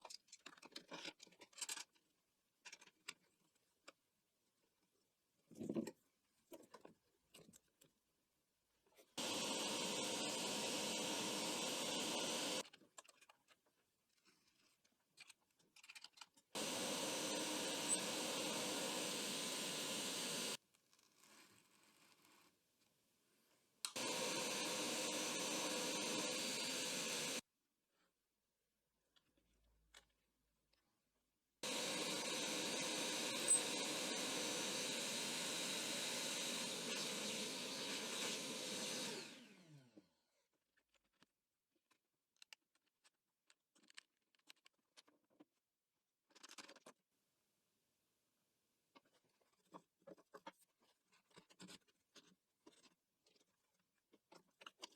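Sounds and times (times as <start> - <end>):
electric motor running: 9.2 - 12.6, 16.6 - 20.6, 24.0 - 27.4, 31.6 - 40.0
motor spinning down: 9.2 - 12.6, 16.6 - 20.6, 24.0 - 27.4, 31.6 - 40.0.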